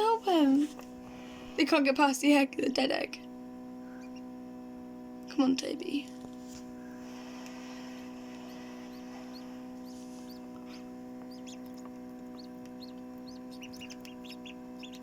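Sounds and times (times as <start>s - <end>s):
electrical hum: 0.0s - 15.0s
ducklings peeping: 3.8s - 4.4s, 7.0s - 15.0s.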